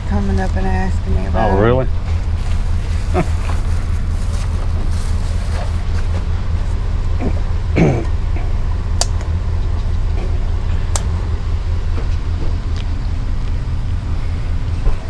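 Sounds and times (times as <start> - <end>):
vehicle engine idling: 0.0 - 15.0
sharp clicks: 9.0 - 9.4, 10.9 - 11.2.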